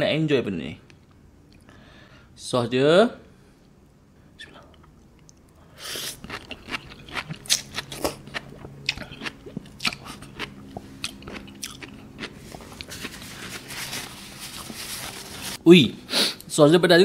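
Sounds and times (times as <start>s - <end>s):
sea grapes crunching and popping: 6.2s - 13.2s.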